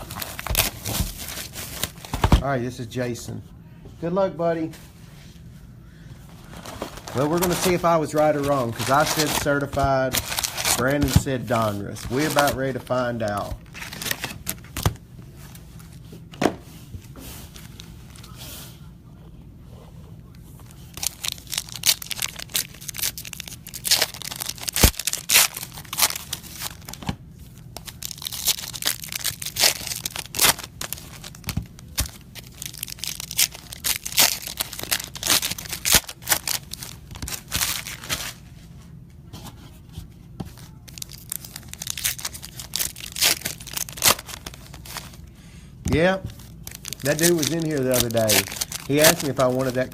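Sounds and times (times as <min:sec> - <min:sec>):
card wrappers tearing and crinkling: 0:00.0 - 0:02.4, 0:06.6 - 0:15.0, 0:20.7 - 0:38.4, 0:40.8 - 0:45.2, 0:46.0 - 0:49.9.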